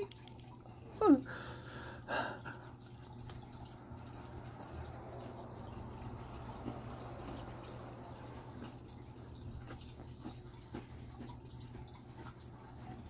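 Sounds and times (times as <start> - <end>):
man biting and chewing: 8.5 - 12.6.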